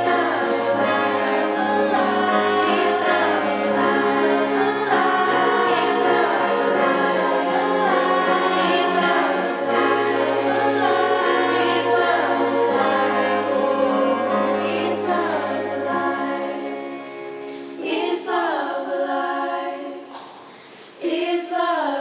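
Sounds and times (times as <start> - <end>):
choir singing held chords: 0.0 - 20.2, 21.0 - 22.0.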